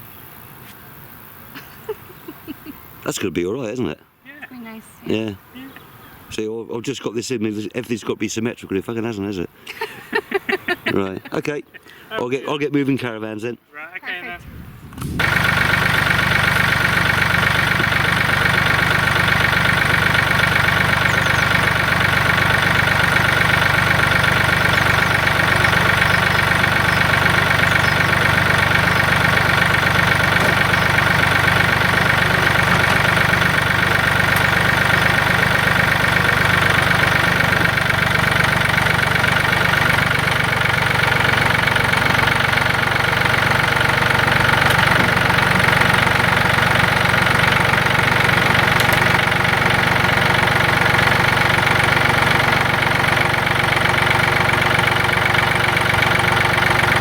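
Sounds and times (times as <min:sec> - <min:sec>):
tractor engine running: 0:14.4 - 0:57.0.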